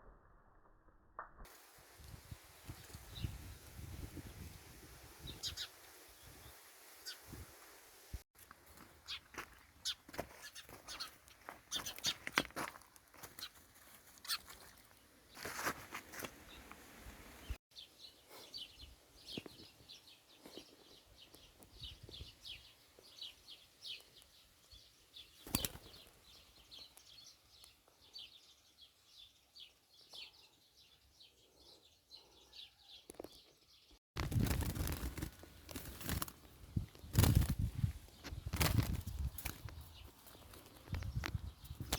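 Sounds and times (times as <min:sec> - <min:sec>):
small birds chirping: 0:01.6 - 0:07.5, 0:08.4 - 0:41.9
wing flapping: 0:34.2 - 0:40.9.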